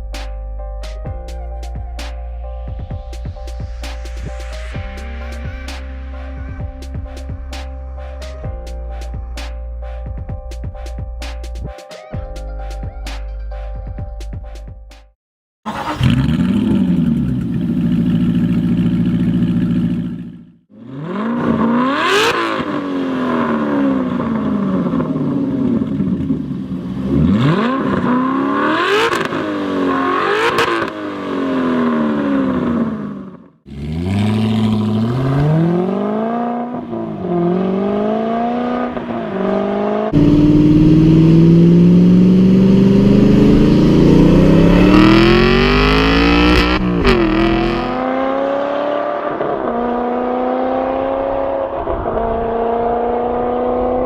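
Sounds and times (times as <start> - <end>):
car engine revving: 15.7 - 54.0.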